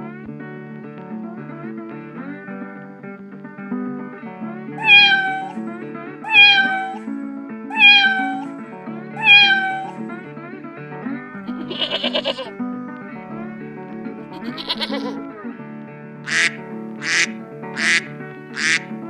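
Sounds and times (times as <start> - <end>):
background music with plucked guitar: 0.0 - 19.0
cat meowing: 4.8 - 5.6, 6.2 - 7.0, 7.7 - 8.5, 9.2 - 10.0, 11.5 - 12.5, 14.4 - 15.2, 16.3 - 18.9.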